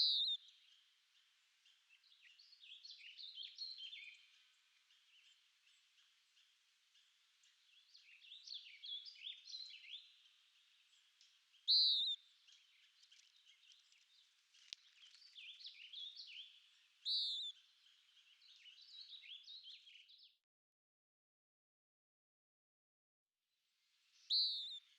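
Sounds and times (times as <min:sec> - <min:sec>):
songbirds chirping and twittering: 0:00.0 - 0:20.4, 0:23.7 - 0:24.9.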